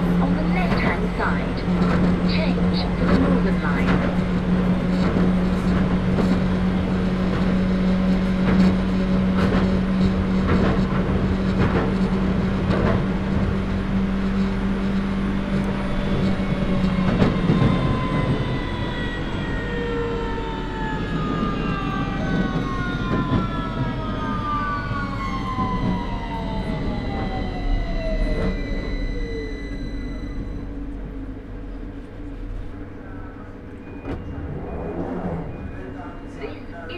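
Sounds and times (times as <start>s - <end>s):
train motor hum: 0.0s - 36.9s
traction motor whine falling in pitch: 13.7s - 32.8s.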